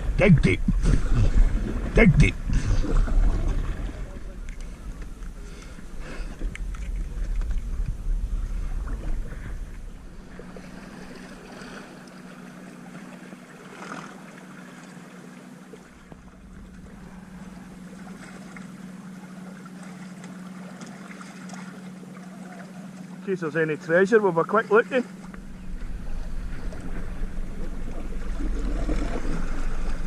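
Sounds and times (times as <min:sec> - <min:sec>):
loud low rumble: 0:00.0 - 0:11.1, 0:16.0 - 0:18.5, 0:25.2 - 0:30.0
electric outboard motor humming: 0:00.0 - 0:30.0
water washing: 0:00.0 - 0:30.0.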